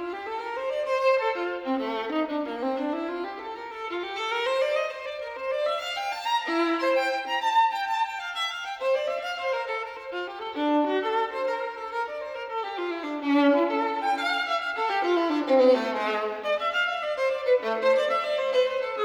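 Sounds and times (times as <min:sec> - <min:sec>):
violin melody: 0:00.0 - 0:19.0.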